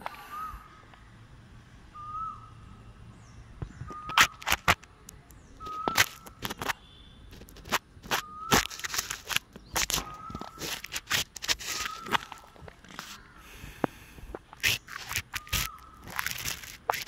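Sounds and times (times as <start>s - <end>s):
bird whistling call: 0.2s - 0.8s, 1.9s - 2.8s, 3.7s - 4.4s, 5.5s - 6.3s, 8.2s - 8.9s, 9.6s - 10.7s, 11.7s - 12.5s, 14.6s - 16.0s
sharp clicks and knocks: 3.6s - 4.9s, 5.6s - 13.2s.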